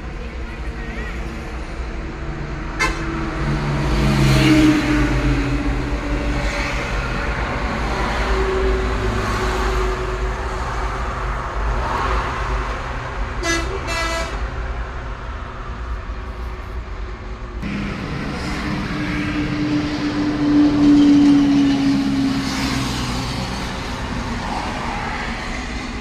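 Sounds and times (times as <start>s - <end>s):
horn toots: 2.7s - 5.4s, 13.4s - 14.4s
diesel engine running: 17.6s - 26.0s.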